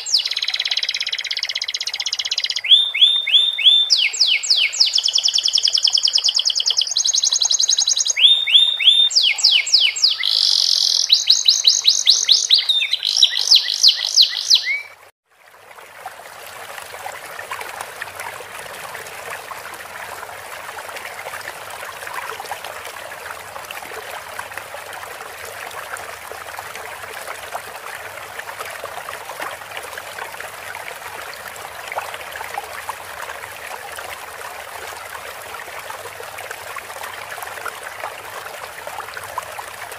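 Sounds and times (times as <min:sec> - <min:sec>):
canary singing trills: 0:00.0 - 0:15.0
trickling stream of water: 0:00.0 - 0:39.9.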